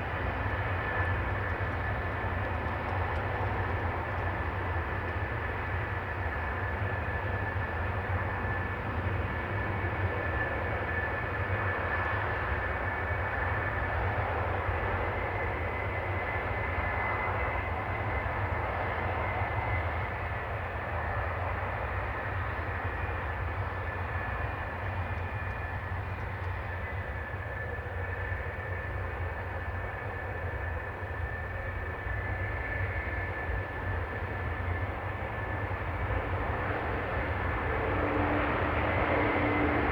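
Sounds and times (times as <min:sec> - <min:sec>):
jet engines whining: 0:21.2 - 0:39.9.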